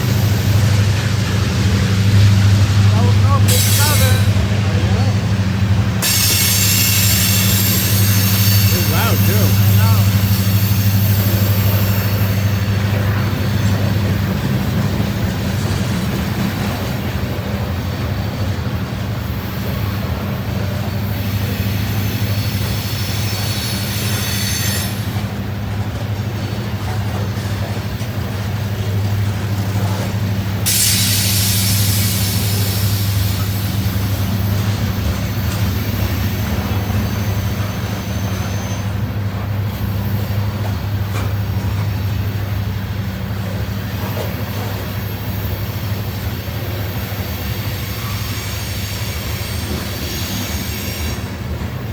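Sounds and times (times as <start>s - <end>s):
train wheels rumbling on rails: 0.0s - 51.9s
high wheel squeal: 6.0s - 13.9s, 21.0s - 25.2s, 35.2s - 39.2s.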